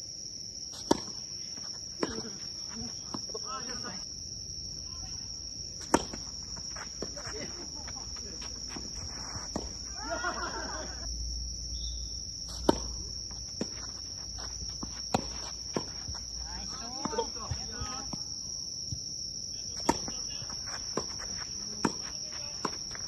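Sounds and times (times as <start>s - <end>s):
high-pitched insect chirr: 0.1s - 23.0s
tennis racket hitting ball: 0.8s - 1.2s, 5.8s - 11.0s, 12.5s - 16.4s, 19.8s - 23.0s
tennis balls bouncing: 0.8s - 4.0s, 5.7s - 11.1s, 11.9s - 18.5s, 19.7s - 23.0s
distant voice: 7.0s - 11.1s.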